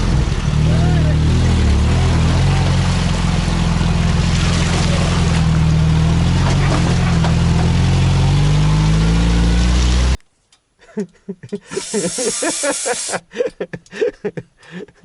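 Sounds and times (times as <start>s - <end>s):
car engine running: 0.0s - 10.2s.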